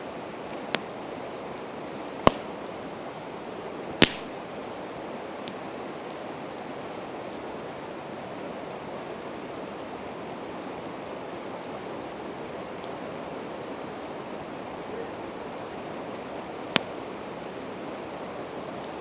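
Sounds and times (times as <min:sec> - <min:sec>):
campfire wood popping and crackling: 0:00.3 - 0:03.1, 0:04.0 - 0:06.7, 0:15.3 - 0:19.0.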